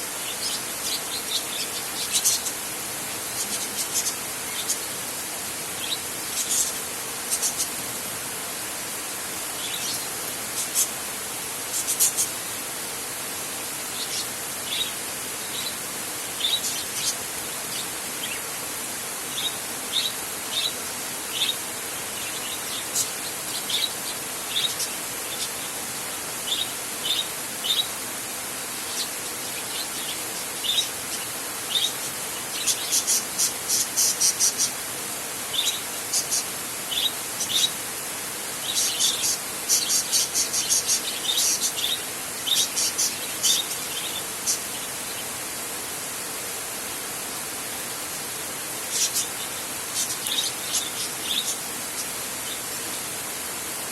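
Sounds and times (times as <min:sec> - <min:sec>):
rain hissing: 0:00.0 - 0:53.9
high chirping calls: 0:35.5 - 0:37.8, 0:38.6 - 0:45.2, 0:48.9 - 0:53.0.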